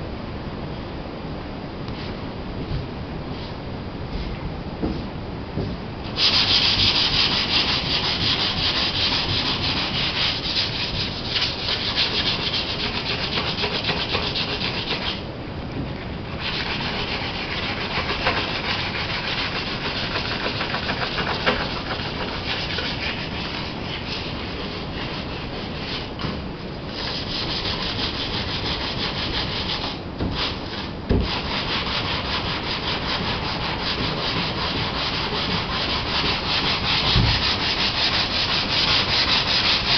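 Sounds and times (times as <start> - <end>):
sandpaper scrubbing a hull: 6.1 - 15.2, 16.3 - 26.1, 27.0 - 39.9.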